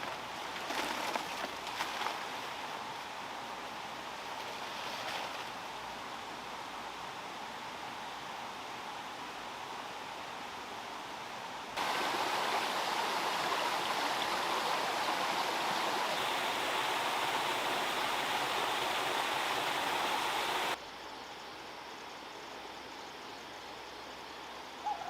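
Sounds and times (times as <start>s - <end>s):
quiet steady hiss: 0.0s - 25.0s
flowing water rushing: 11.8s - 20.8s.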